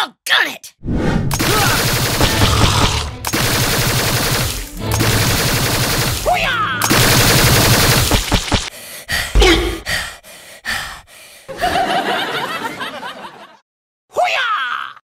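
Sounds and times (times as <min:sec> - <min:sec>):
automatic gunfire: 0:01.4 - 0:08.7
person crying out: 0:06.3 - 0:06.9, 0:09.4 - 0:09.8.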